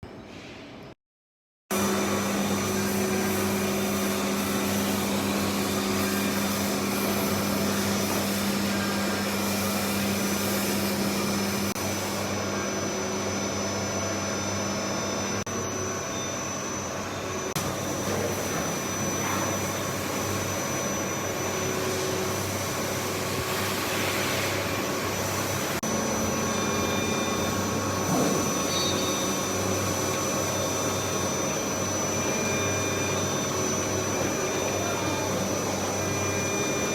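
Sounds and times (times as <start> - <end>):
machine hum: 24.8 - 36.9
held machine tones: 25.9 - 36.9.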